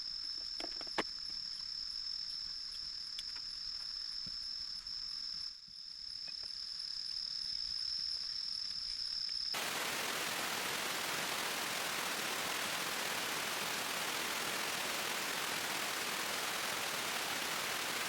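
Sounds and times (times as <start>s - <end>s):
insects trilling: 0.1s - 18.0s
faint hiss: 9.6s - 18.0s
heavy rain: 9.6s - 18.0s.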